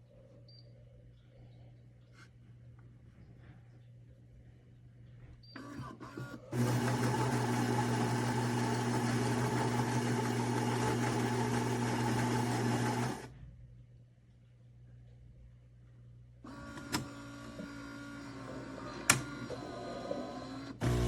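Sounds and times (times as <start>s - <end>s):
espresso machine buzzing: 6.5s - 13.3s, 16.6s - 21.0s.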